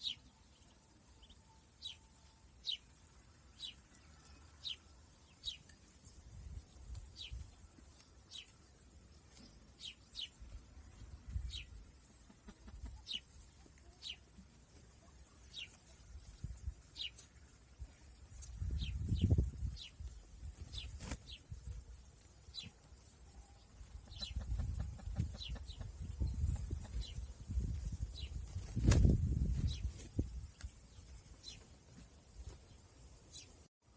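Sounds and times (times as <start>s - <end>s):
bird chirping: 0.0s - 5.8s, 23.4s - 28.4s.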